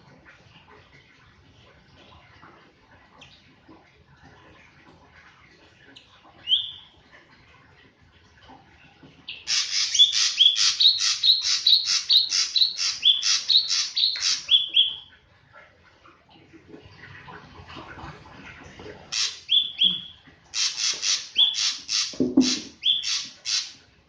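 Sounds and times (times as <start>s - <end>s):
bird harsh repeated notes: 9.5s - 14.8s, 19.2s - 20.0s, 20.6s - 23.8s.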